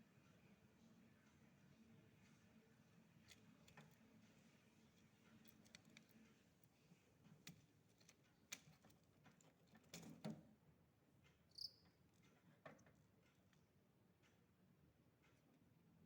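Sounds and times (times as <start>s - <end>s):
faint clicks and taps: 3.2s - 10.5s.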